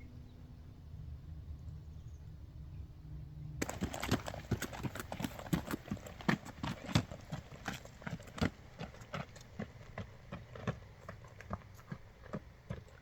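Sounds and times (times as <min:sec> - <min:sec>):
footsteps on rocky dirt trail: 0:03.6 - 0:13.0.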